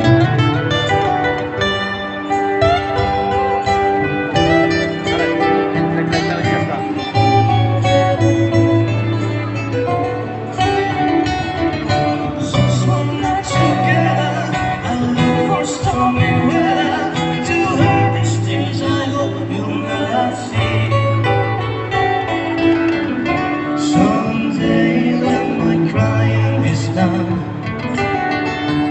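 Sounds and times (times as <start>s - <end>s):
guitar accompaniment: 0.0s - 28.9s
held bass notes: 0.0s - 28.9s
person singing: 11.8s - 28.9s.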